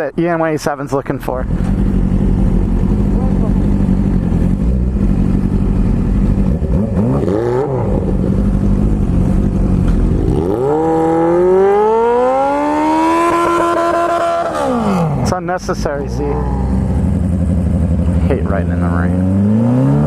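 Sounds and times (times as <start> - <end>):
motorcycle engine revving: 1.3 - 20.0.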